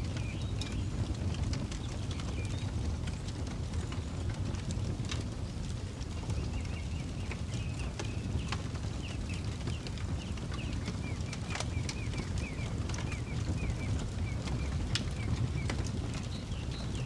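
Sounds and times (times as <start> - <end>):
campfire crackling: 0.0 - 17.0
bird chirping: 6.3 - 17.0.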